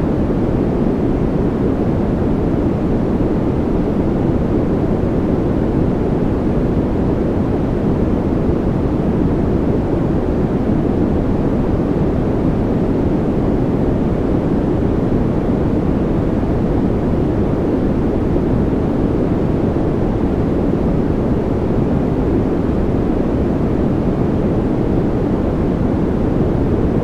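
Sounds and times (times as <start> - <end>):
white noise hiss: 0.0 - 27.0.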